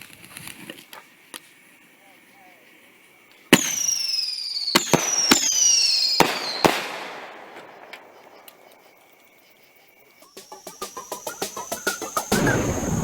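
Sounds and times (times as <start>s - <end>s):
firework bangs: 3.5s - 8.4s, 10.4s - 13.0s
falling firework whistles: 3.5s - 8.8s, 10.2s - 13.0s.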